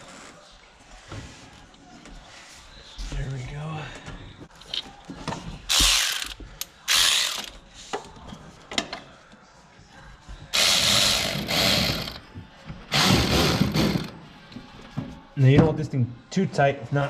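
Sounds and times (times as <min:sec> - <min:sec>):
ratchet clicking: 0:05.7 - 0:07.6.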